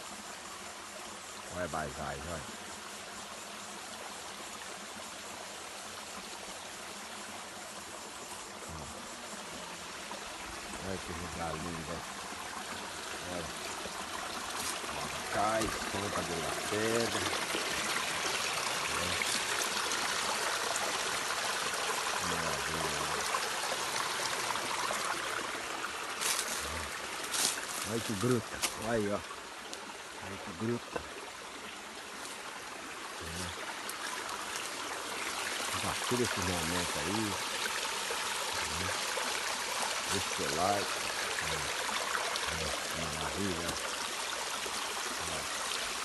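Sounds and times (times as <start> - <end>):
waterfall over rock: 0.0 - 46.0.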